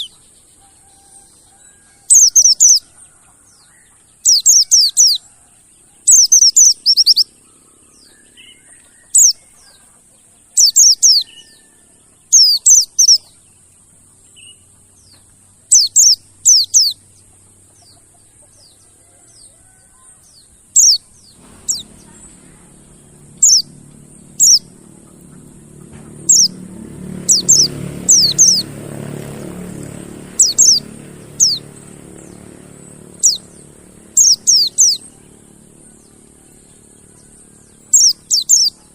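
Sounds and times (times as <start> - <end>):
bird chirping: 0.0 - 38.9
low rumble: 21.2 - 37.9.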